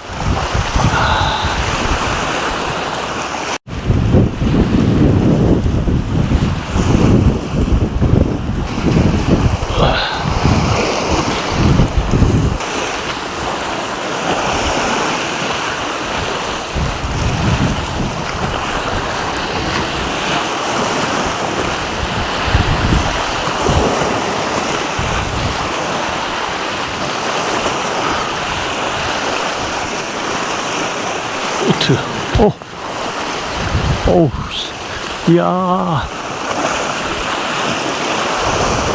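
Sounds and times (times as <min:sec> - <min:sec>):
wind buffeting microphone: 0:00.0 - 0:02.9, 0:03.7 - 0:12.6, 0:16.2 - 0:20.2, 0:21.6 - 0:24.0, 0:25.0 - 0:25.7, 0:32.9 - 0:34.1
sea waves washing: 0:00.1 - 0:03.6, 0:08.6 - 0:12.0, 0:18.9 - 0:38.9.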